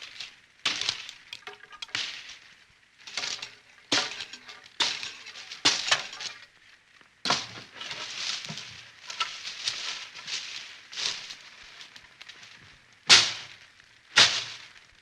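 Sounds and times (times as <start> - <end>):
glass breaking: 0.1 - 2.4, 3.1 - 6.5, 7.3 - 9.5.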